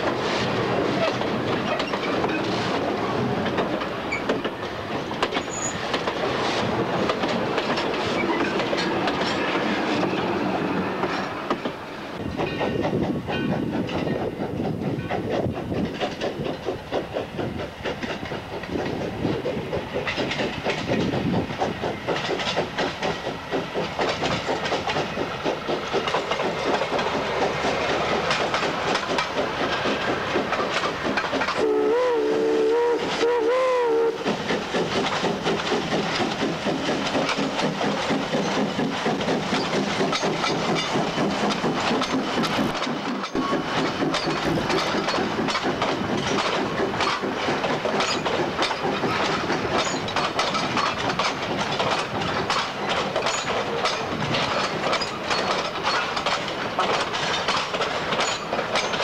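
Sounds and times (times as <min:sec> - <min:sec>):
train wheels clicking over rails: 0:00.0 - 0:59.0
steam locomotive whistle: 0:31.6 - 0:34.3.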